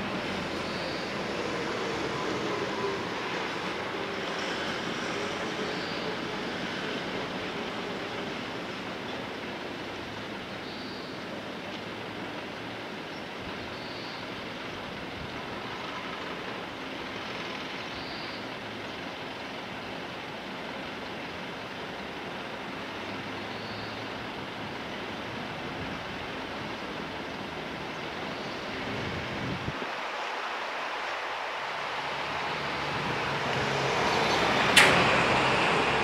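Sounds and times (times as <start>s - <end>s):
electric locomotive running: 0.0s - 13.5s, 30.8s - 36.0s.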